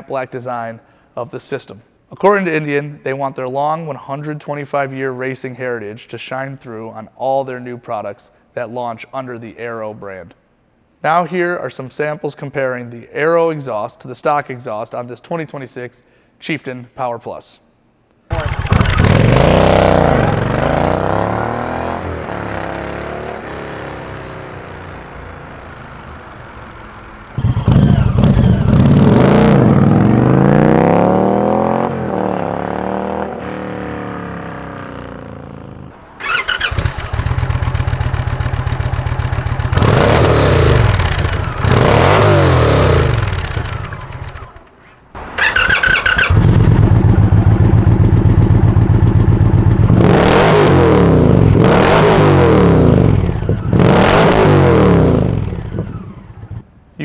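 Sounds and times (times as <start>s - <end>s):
motorcycle idling: 18.3s - 22.5s, 24.3s - 30.2s, 36.0s - 56.7s
motorcycle passing by: 18.3s - 44.6s, 45.2s - 56.6s
motorcycle revving: 18.3s - 56.7s.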